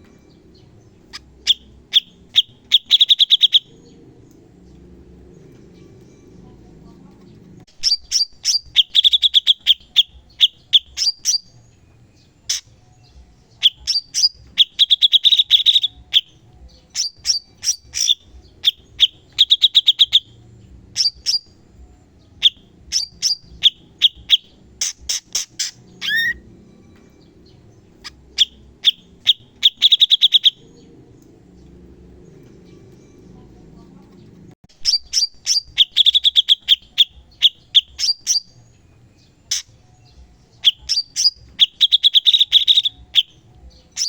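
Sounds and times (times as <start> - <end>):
songbird chattering and trilling: 0.0 - 6.6, 7.2 - 33.4, 34.2 - 44.0.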